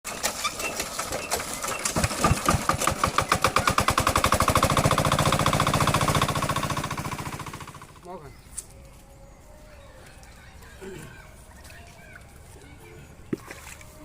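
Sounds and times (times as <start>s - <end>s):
small diesel engine starting: 0.1s - 8.0s.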